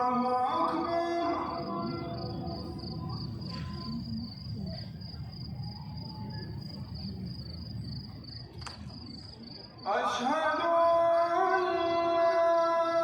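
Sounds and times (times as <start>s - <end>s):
crowd murmur: 0.0s - 10.2s.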